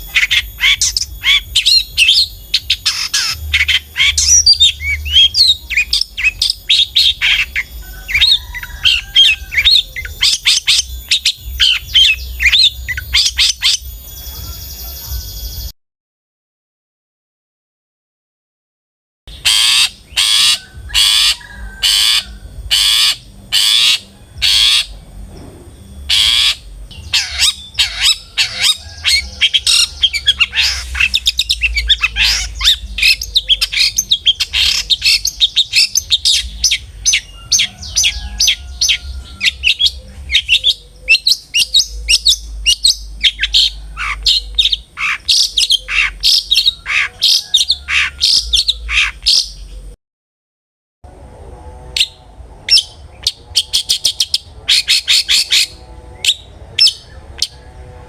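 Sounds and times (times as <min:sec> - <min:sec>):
shrike chattering song: 0:00.0 - 0:15.7, 0:19.3 - 0:49.9
shrike harsh calls: 0:00.0 - 0:15.7, 0:19.3 - 0:49.6.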